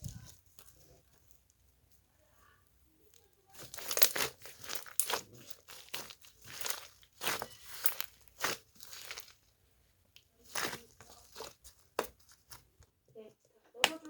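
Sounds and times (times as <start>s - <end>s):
crunching and crackling: 3.0s - 13.3s.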